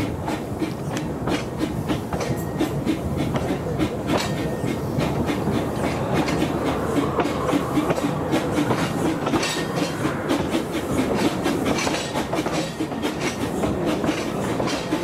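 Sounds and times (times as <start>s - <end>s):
train wheels rumbling: 0.0s - 15.0s
wheels clattering and clicking: 11.1s - 15.0s.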